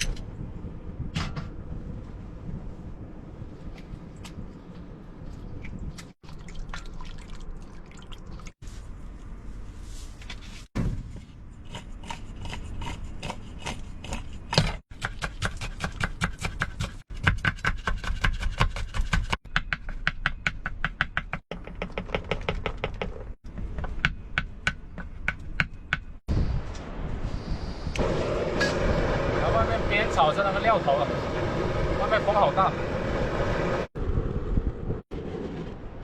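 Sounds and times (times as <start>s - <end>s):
wet rubbing and scraping: 8.6s - 14.6s.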